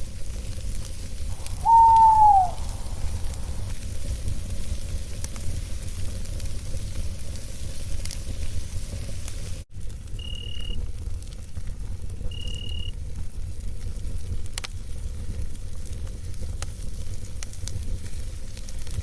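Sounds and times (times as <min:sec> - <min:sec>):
campfire crackling: 0:00.0 - 0:19.0
owl hoot: 0:01.3 - 0:03.7
low steady rumble: 0:02.5 - 0:04.3.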